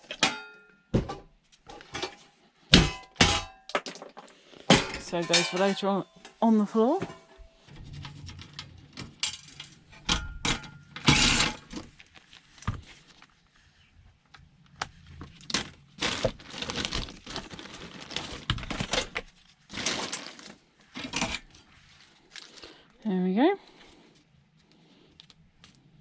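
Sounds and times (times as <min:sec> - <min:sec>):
tools and metal parts knocking: 0:04.7 - 0:05.9.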